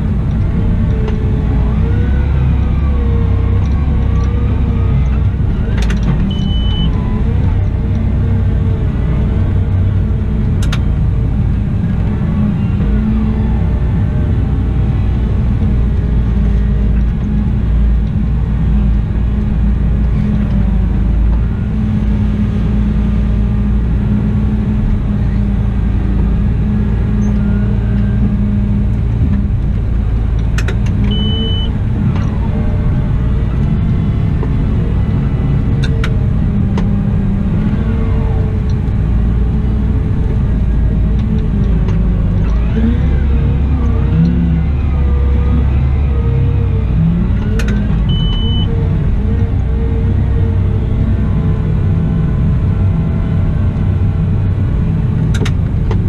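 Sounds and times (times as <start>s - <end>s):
wheel loader diesel engine rumbling: 0.0s - 56.0s
short high beep: 6.3s - 7.0s, 31.1s - 31.7s.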